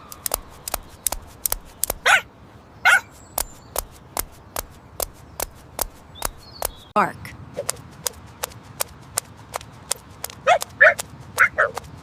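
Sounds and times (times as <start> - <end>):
sharp clicks: 0.0 - 2.1, 3.1 - 6.9
dog yapping: 2.0 - 2.3, 2.9 - 3.2, 10.4 - 11.8.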